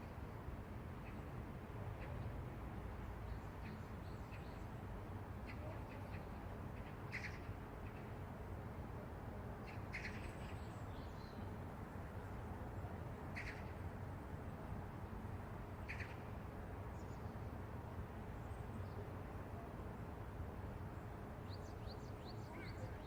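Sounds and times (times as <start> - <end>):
low city rumble: 0.0 - 23.0.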